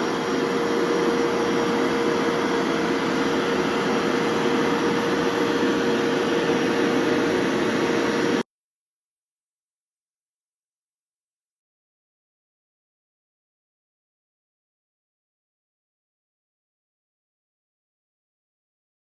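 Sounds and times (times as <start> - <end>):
carpet washer suction motor: 0.0 - 8.4.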